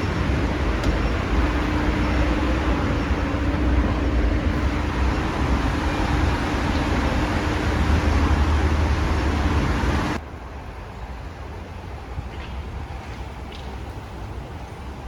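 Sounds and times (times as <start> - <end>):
vehicle rumble: 0.0 - 12.2.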